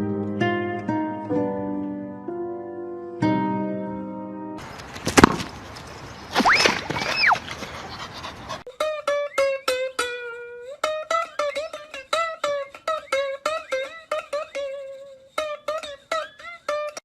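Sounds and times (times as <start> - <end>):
plucked string instrument: 0.0 - 4.6, 8.7 - 17.0.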